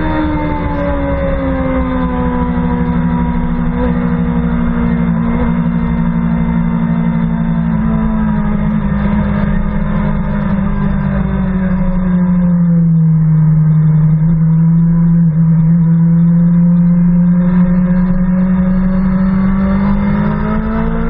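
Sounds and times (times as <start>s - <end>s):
motorcycle engine running hard: 0.0s - 21.0s.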